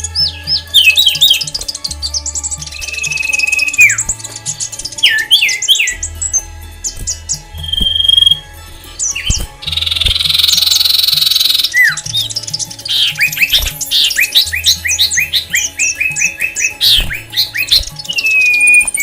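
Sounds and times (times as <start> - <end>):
whistled bird notes: 0.0 - 19.0
bird screech: 12.9 - 19.0.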